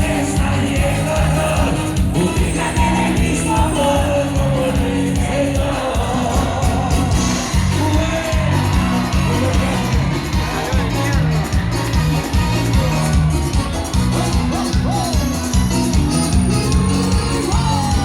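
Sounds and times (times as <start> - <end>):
person singing: 0.0 - 10.9
crowd shouting: 0.0 - 18.0
live band music: 0.0 - 18.0
repeating bass line: 0.0 - 18.0.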